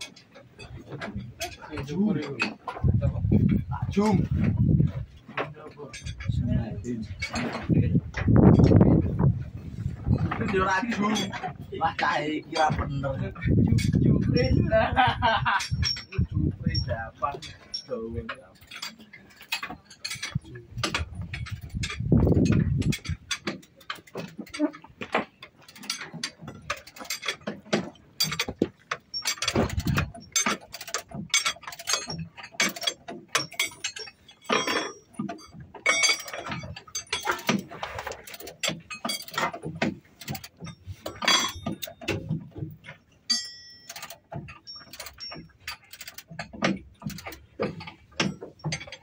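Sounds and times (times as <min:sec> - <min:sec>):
steel tools clinking and knocking: 0:00.0 - 0:09.2, 0:10.1 - 0:49.0
short metallic rings: 0:15.5 - 0:24.6, 0:28.2 - 0:42.3, 0:43.2 - 0:49.0.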